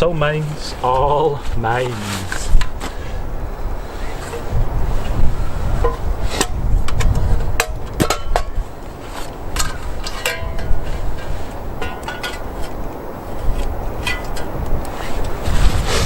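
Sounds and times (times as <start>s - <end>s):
wind rumble on microphone: 0.0s - 16.0s
metal cookware clinking: 9.6s - 12.8s.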